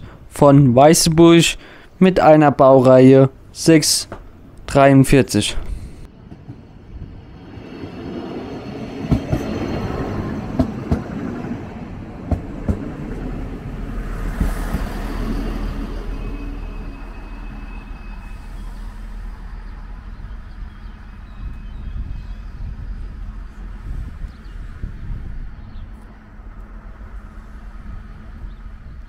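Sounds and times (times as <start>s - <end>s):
train rumble: 5.4s - 29.0s
low engine hum: 6.0s - 29.0s
high brake squeal: 14.5s - 23.2s.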